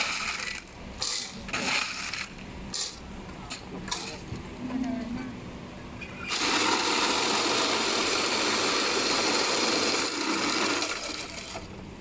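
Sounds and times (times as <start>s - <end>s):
electric ice shaver grinding ice: 6.3s - 11.6s.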